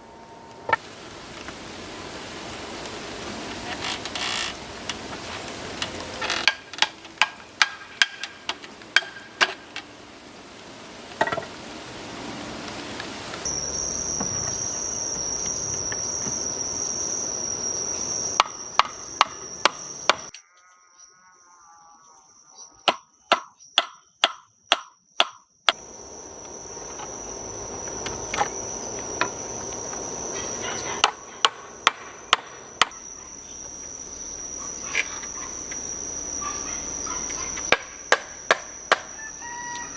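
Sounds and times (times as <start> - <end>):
insect chirring: 0.1 - 39.9
hammering knocks: 6.3 - 9.6, 18.4 - 20.3, 30.8 - 33.0, 37.7 - 39.1.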